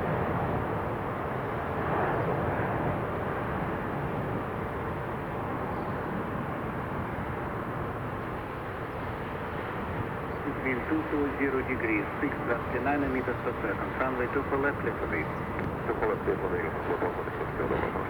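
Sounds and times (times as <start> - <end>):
jet engine rumble and hiss: 0.0 - 18.0.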